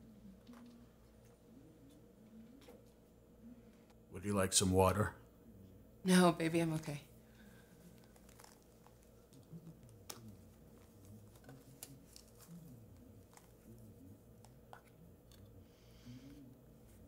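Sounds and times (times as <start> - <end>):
faint room hum: 0.0 - 17.0
small object clicks and rustles: 7.8 - 15.5.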